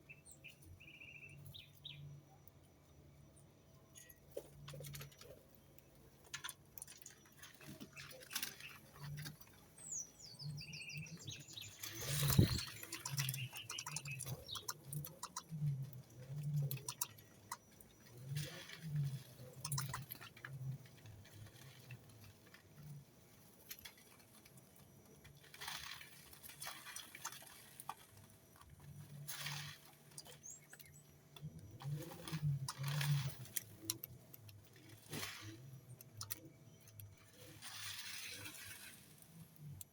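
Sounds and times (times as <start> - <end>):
birds chirping: 0.0 - 2.5, 6.8 - 20.7, 26.6 - 38.8
light clicks and patter: 3.8 - 39.9.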